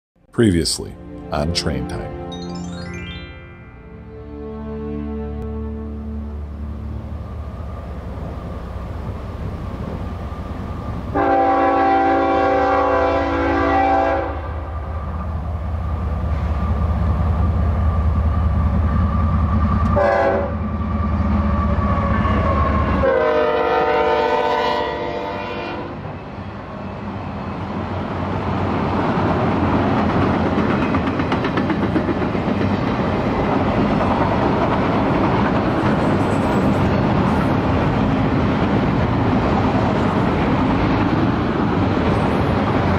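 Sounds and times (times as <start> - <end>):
diesel locomotive rumbling: 4.0 - 42.9
multi-note air horn blasts: 11.1 - 14.5, 20.0 - 20.6, 23.0 - 26.0
wheels clattering on rails: 28.8 - 42.9.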